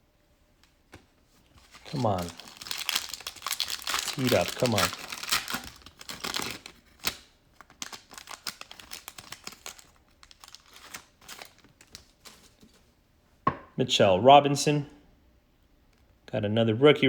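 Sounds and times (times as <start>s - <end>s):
card wrapper crinkling: 1.6s - 12.8s.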